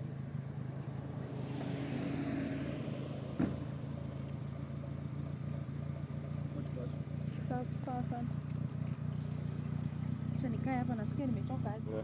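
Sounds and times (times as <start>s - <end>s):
car engine idling: 0.0s - 12.0s
sharp thump: 3.3s - 3.8s.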